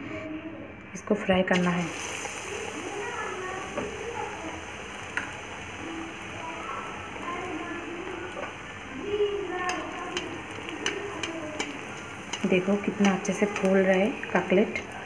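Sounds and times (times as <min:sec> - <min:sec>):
food sizzling in hot oil: 0:01.5 - 0:15.0
slotted spoon knocking on pan: 0:09.6 - 0:15.0.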